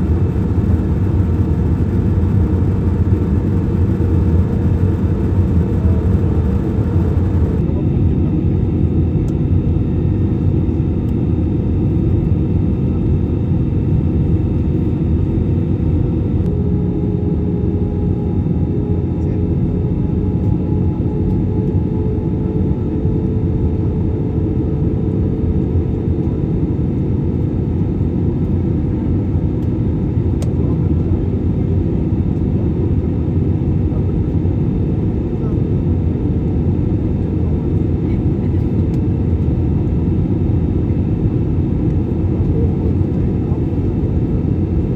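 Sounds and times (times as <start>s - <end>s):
faint steady hums: 0.0s - 7.6s
airliner engines droning in cabin: 0.0s - 44.9s.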